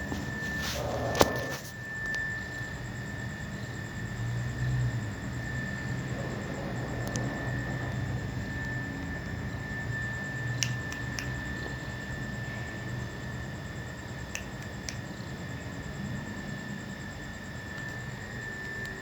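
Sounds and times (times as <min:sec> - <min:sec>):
high-pitched whine: 0:00.0 - 0:14.3, 0:15.1 - 0:19.0
steady low hum: 0:00.0 - 0:19.0.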